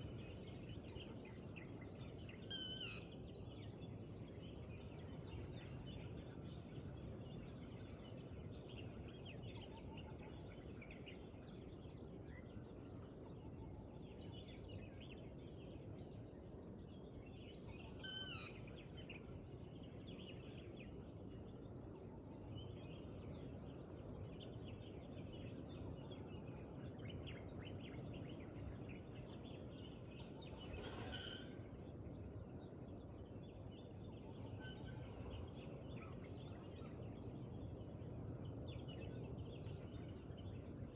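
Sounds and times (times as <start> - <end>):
small birds chirping: 0.0 - 6.1, 16.9 - 19.2, 24.2 - 40.8
low background hum: 0.0 - 40.9
loud short bird call: 2.5 - 3.1, 18.0 - 18.6, 30.7 - 31.6.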